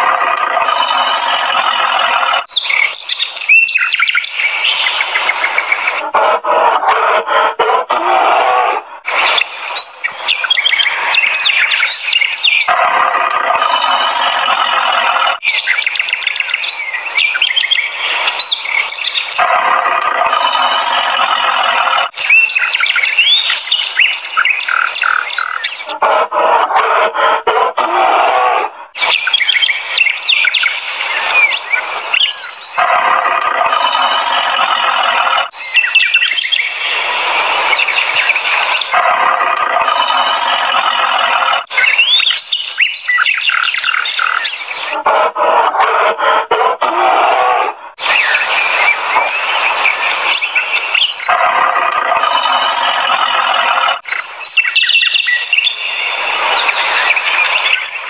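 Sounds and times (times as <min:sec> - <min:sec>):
birds chirping and calling: 0:00.0 - 0:58.0.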